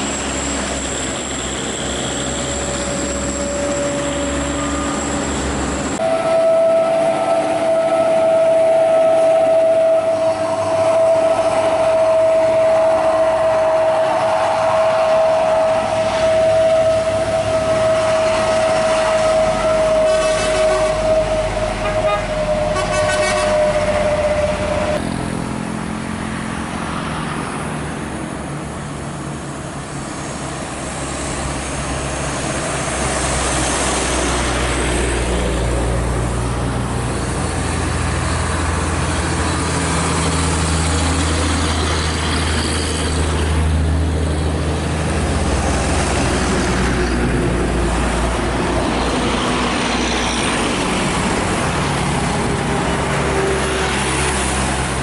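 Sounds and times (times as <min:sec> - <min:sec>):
diesel engine droning: 0:00.0 - 0:55.0
heavy road traffic: 0:00.0 - 0:55.0
horn held tone: 0:02.3 - 0:25.0.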